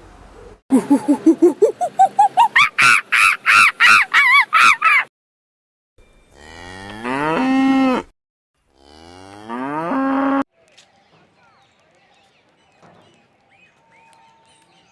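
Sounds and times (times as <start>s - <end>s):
cow mooing: 6.3s - 8.1s, 8.7s - 10.4s.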